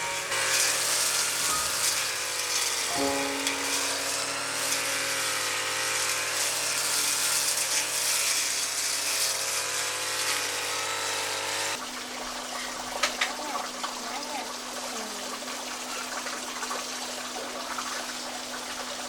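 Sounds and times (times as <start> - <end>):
small motor humming whine: 0.0 - 11.8.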